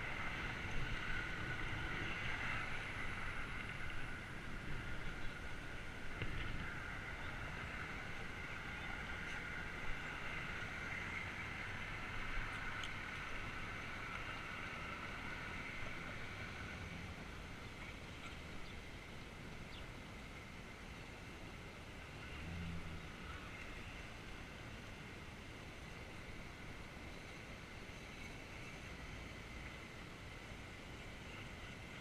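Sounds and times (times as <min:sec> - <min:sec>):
wind noise: 0:00.0 - 0:18.8
bicycle rolling road noise: 0:00.0 - 0:32.0
faint clicks: 0:12.5 - 0:13.0.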